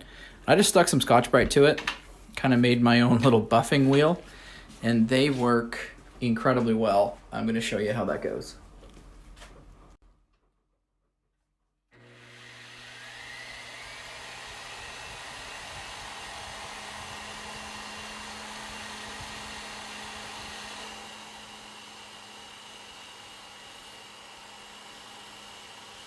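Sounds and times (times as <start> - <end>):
sander whining: 12.0 - 26.0.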